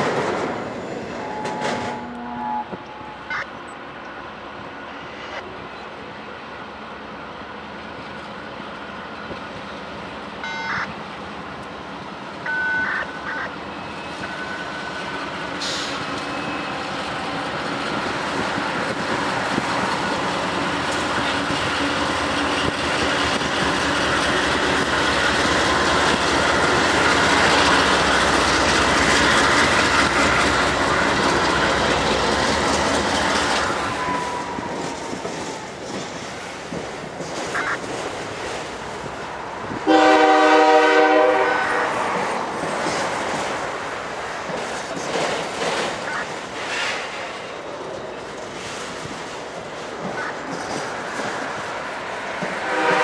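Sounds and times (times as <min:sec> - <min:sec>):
diesel locomotive engine drone: 0:00.0 - 0:53.0
rail cars rumbling and clattering: 0:00.0 - 0:53.0
train wheel noise: 0:00.0 - 0:53.0
short high tones: 0:01.1 - 0:03.6.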